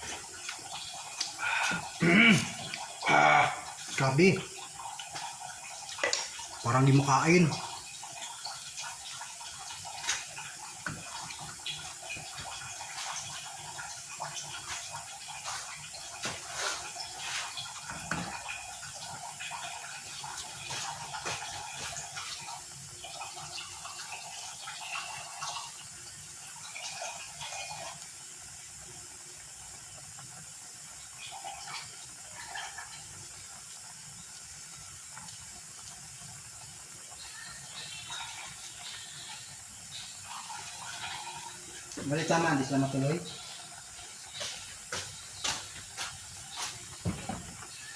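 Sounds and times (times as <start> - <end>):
stew bubbling and popping in a pot: 0.0 - 47.9.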